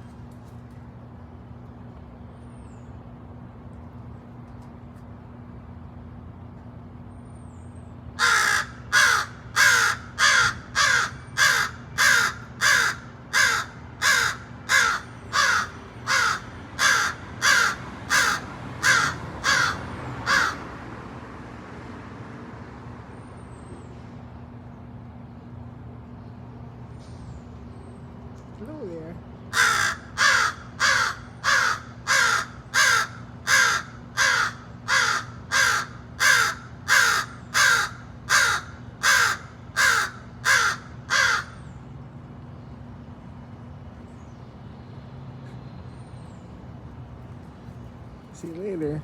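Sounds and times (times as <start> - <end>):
crow cawing: 8.2 - 20.7, 29.5 - 41.6.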